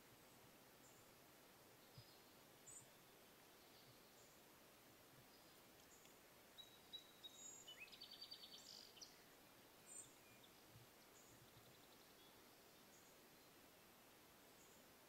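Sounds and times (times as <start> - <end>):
low steady hiss: 0.0 - 15.0
songbird calls: 1.8 - 4.4, 5.2 - 13.6.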